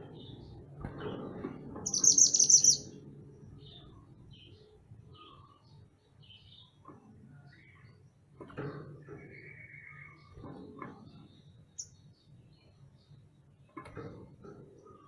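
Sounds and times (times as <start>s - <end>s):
songbird singing: 1.8s - 8.3s, 9.1s - 13.8s.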